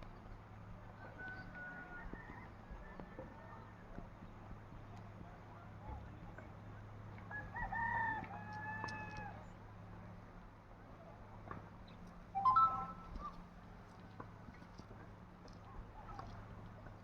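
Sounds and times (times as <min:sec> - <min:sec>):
rooster crowing: 0:07.3 - 0:09.4.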